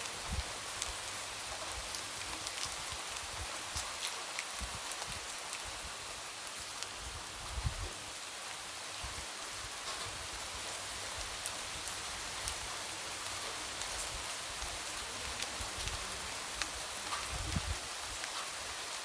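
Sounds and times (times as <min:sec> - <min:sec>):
light rain hiss: 0:00.0 - 0:19.0
raindrop ticks: 0:16.6 - 0:18.5.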